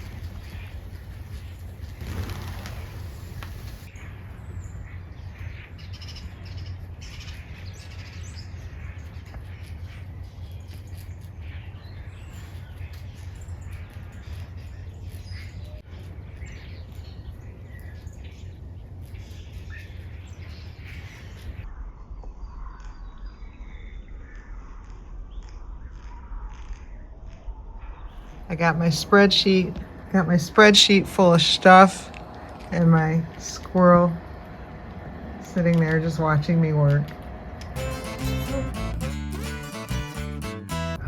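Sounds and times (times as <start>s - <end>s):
birds chirping and calling: 0.0s - 3.9s
low hum: 28.2s - 41.0s.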